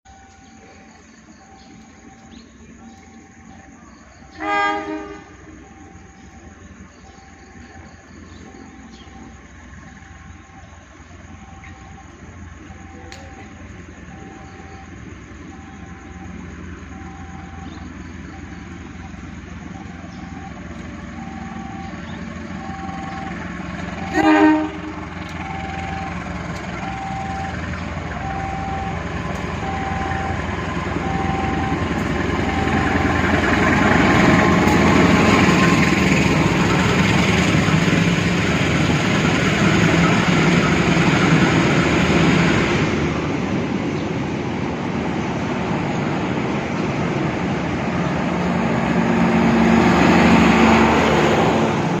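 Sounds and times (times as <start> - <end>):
level crossing warning tone: 0.1 - 52.0
train passing on rails: 0.1 - 52.0
train horn blast: 4.3 - 5.6, 24.0 - 25.2.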